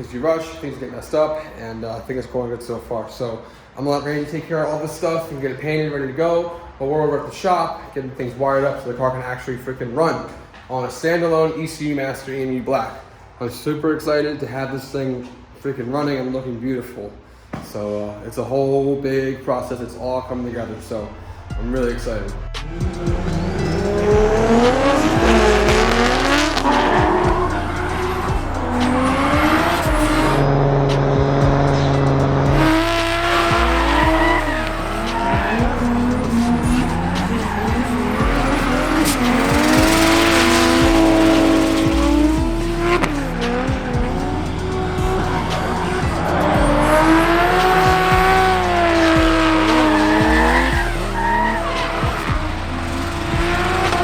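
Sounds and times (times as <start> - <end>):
car engine revving: 21.1 - 54.0
music with stepping bassline: 22.3 - 54.0
tyres squealing: 22.7 - 30.4, 31.6 - 54.0.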